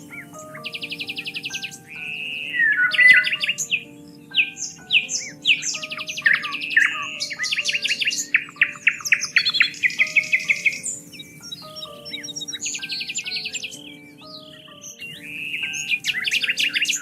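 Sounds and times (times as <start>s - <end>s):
birds singing: 0.0s - 17.0s
soft music of long held notes: 0.0s - 17.0s.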